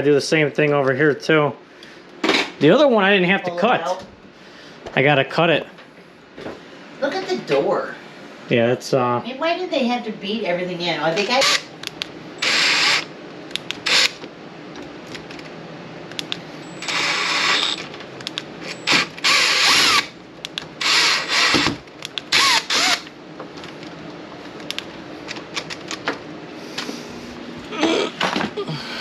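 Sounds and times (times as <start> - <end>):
power tool bursts: 11.4 - 11.7, 12.4 - 13.1, 13.8 - 14.2, 16.6 - 17.9, 18.6 - 20.2, 20.8 - 23.1.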